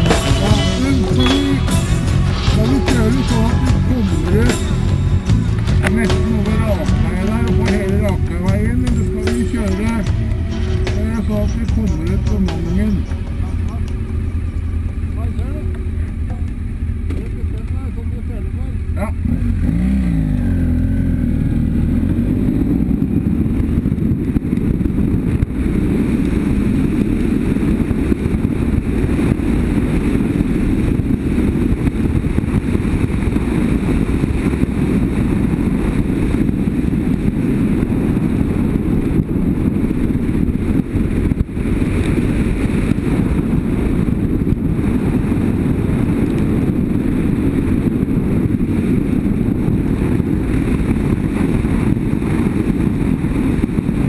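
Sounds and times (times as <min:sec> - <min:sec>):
motorcycle engine cruising: 0:00.0 - 0:54.0
wind on microphone: 0:22.6 - 0:54.0.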